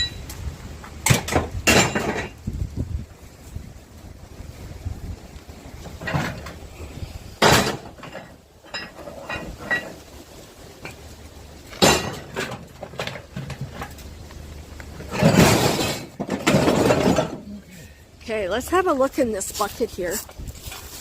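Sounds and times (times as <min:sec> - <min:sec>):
scrap metal clanking: 0:01.0 - 0:02.4, 0:07.4 - 0:10.0, 0:11.7 - 0:14.0, 0:15.0 - 0:17.9.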